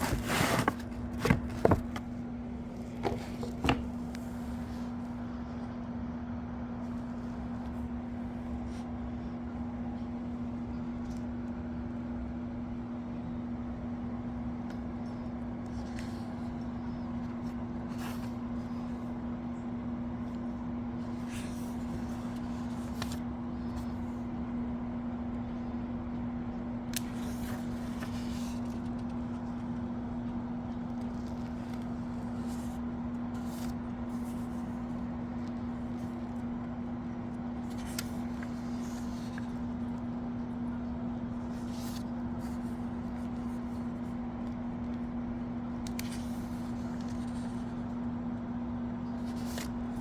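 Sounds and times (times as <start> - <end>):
electrical hum: 0.0 - 50.0
soft rustles and clicks: 27.0 - 45.1.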